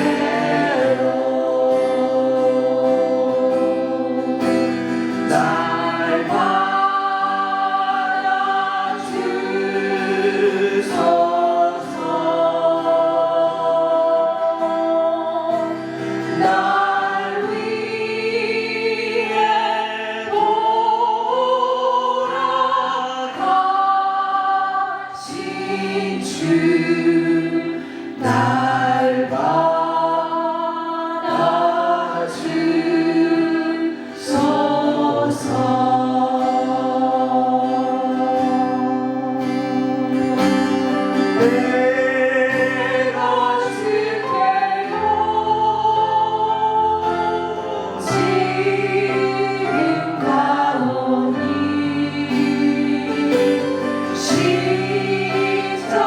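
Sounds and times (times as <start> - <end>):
group singing worship song: 0.0 - 56.0.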